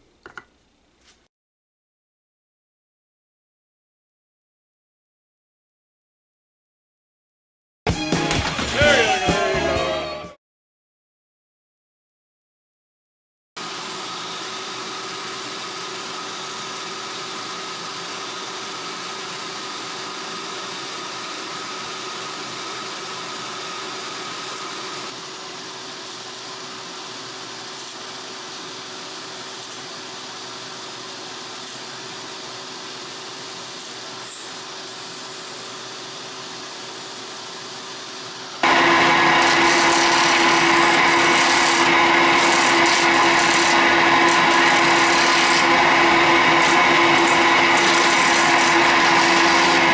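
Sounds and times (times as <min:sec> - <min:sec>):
tool cutting spinning blank: 0:13.6 - 0:49.9
wood lathe motor hum: 0:13.6 - 0:49.9.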